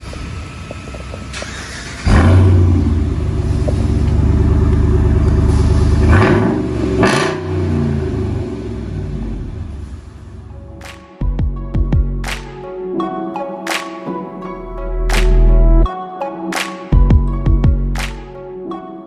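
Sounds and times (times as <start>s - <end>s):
engine exhaust revving: 0.0s - 10.8s.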